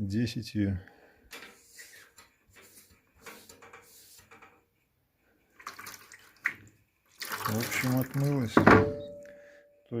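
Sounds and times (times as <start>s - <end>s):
wet handling noises: 5.4s - 8.6s
water splashing: 5.5s - 8.6s.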